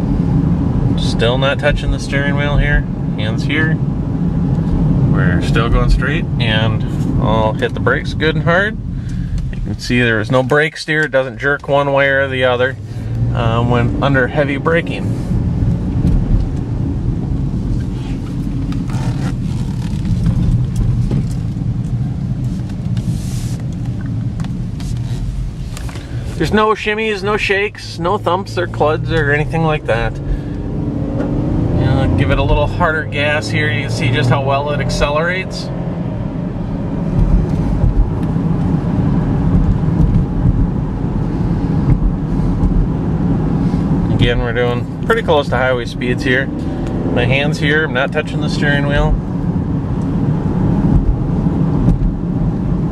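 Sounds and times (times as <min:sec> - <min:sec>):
car cabin road rumble: 0:00.0 - 0:52.9.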